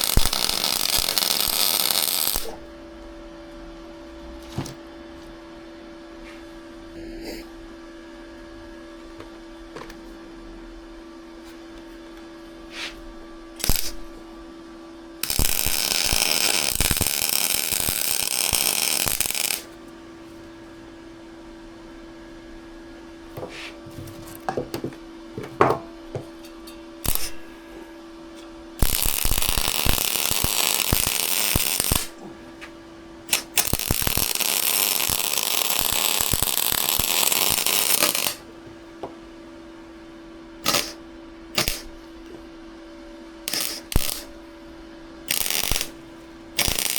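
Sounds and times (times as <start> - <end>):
welding arc crackling: 0.0 - 2.7, 13.6 - 14.2, 15.2 - 19.8, 27.0 - 27.5, 28.8 - 32.2, 33.3 - 38.5, 40.6 - 41.0, 41.6 - 41.9, 43.5 - 44.4, 45.2 - 46.9
steady hum: 0.0 - 46.9.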